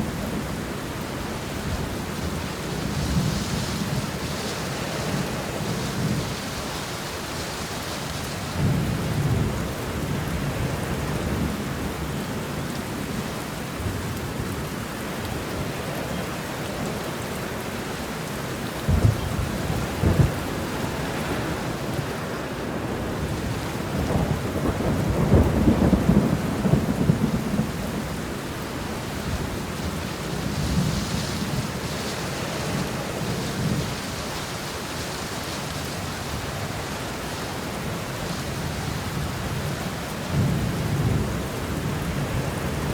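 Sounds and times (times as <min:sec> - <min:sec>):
steady rain falling: 0:00.0 - 0:42.9
thunder rumbling: 0:18.8 - 0:34.3.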